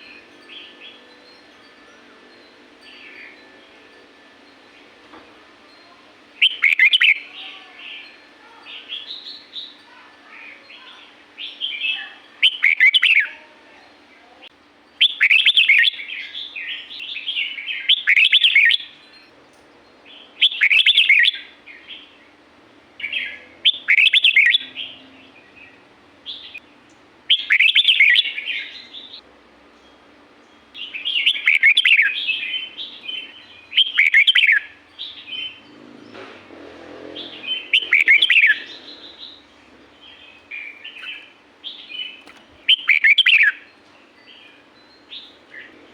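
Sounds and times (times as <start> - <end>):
bird twittering: 6.4 - 8.2, 10.8 - 13.3, 15.0 - 19.0, 20.4 - 22.1, 23.0 - 25.0, 27.3 - 29.2, 30.8 - 35.7, 37.2 - 43.7
bird singing warbled phrases: 6.4 - 19.2, 20.1 - 22.4, 23.0 - 29.3, 30.5 - 36.2, 37.1 - 45.8.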